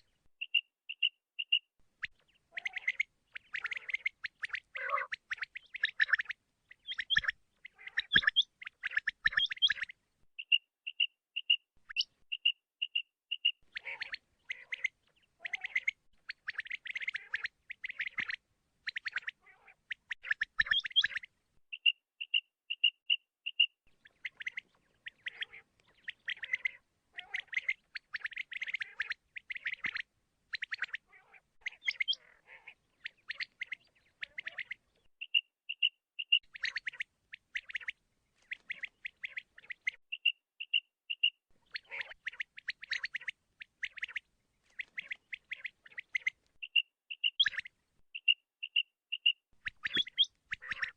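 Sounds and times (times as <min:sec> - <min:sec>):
quail high clear notes: 0:00.0 - 0:16.0, 0:19.3 - 0:37.0, 0:44.8 - 0:50.9.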